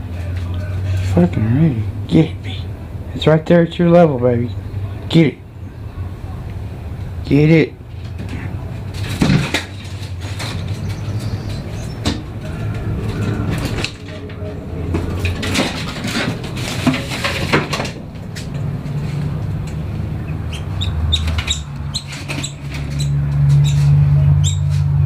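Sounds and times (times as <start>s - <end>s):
steady low hum: 0.0s - 21.1s
rustling and knocking scuffle: 8.0s - 19.4s
bird distress chirps: 10.8s - 12.0s.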